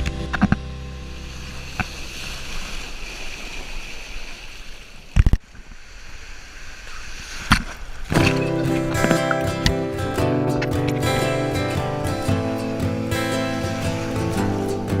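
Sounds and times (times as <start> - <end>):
loud low thumps: 0.0 - 2.8
surf washing on a beach: 0.8 - 15.0.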